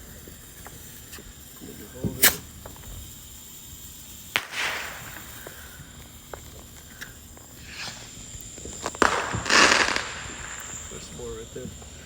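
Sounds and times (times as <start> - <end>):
faint pops and crackles: 0.0 - 12.0
firework hiss: 0.0 - 12.0
firework pop: 2.0 - 2.9, 4.4 - 5.7, 6.3 - 10.9.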